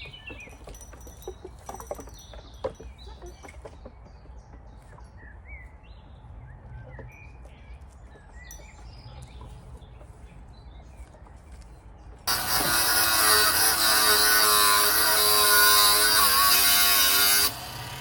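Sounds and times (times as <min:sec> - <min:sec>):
birds chirping: 0:00.0 - 0:12.5.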